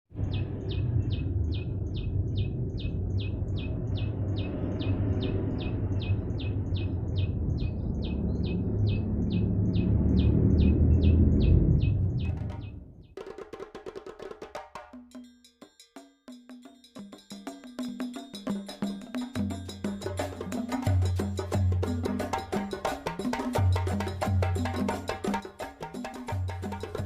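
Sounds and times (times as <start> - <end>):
low rumbling background noise: 0.2 - 12.9.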